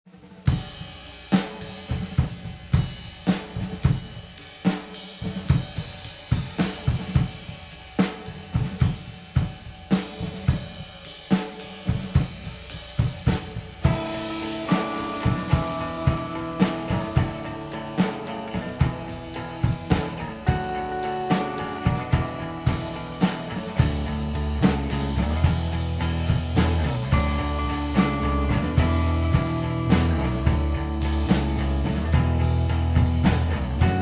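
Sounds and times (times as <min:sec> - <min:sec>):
rock drum beat: 0:00.2 - 0:34.0.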